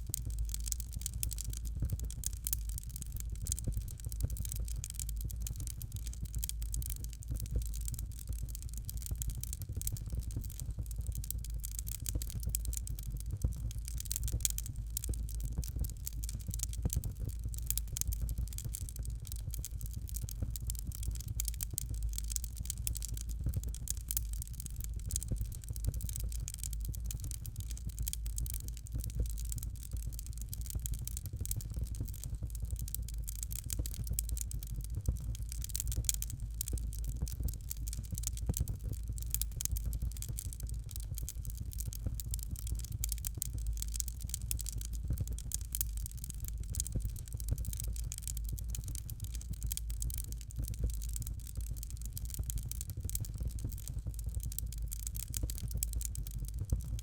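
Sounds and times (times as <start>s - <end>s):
fireplace fire crackling: 0.0s - 57.0s.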